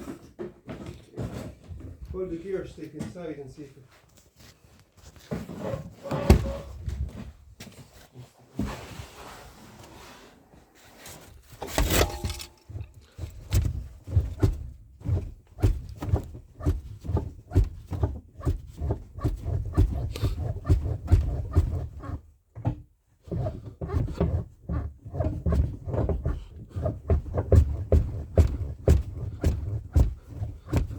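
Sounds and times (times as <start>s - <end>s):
clunks and knocks in engine bay: 11.5s - 18.7s
dull thuds: 11.5s - 21.9s, 25.1s - 30.9s.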